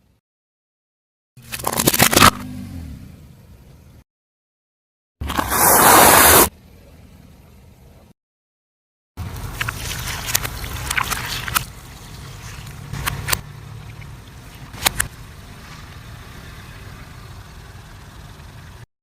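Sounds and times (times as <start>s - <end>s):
tyre crushing brittle objects: 1.4s - 2.4s
car low rumble: 9.2s - 18.8s.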